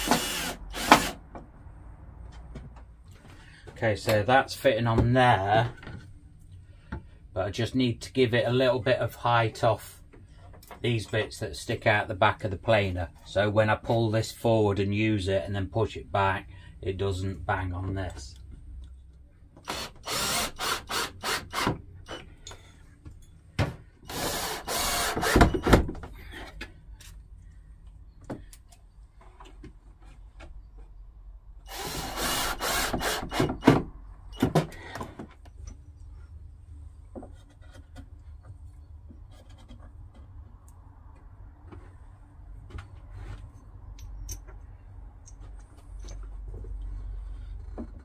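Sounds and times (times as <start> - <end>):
light knocks and handling: 36.9 - 42.0.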